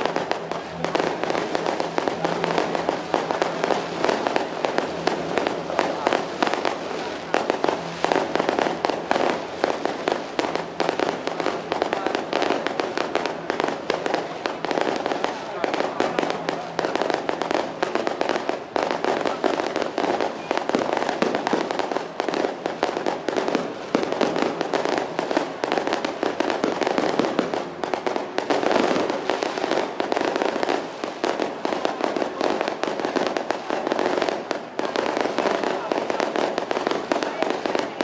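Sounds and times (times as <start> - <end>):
firecrackers banging rapidly: 0.0 - 38.0.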